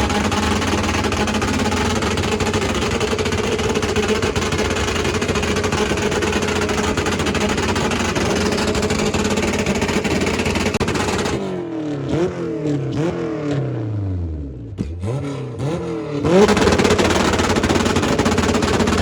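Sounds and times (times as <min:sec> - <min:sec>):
engine pops: 0:00.0 - 0:11.4, 0:16.4 - 0:19.0
car engine revving: 0:00.0 - 0:19.0.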